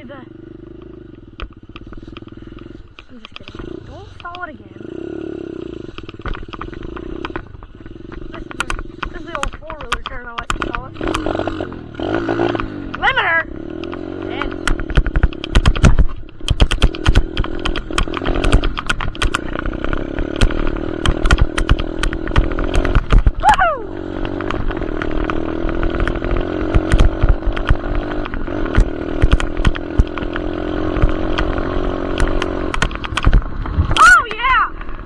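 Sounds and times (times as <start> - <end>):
dirt bike engine revving: 0.0 - 35.0
sharp knocks and clatter: 5.9 - 13.0, 13.7 - 23.4, 24.2 - 34.0.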